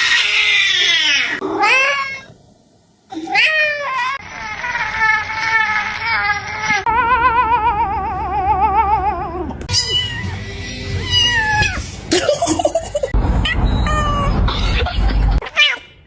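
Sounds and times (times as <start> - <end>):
cat meowing: 6.2 - 11.8.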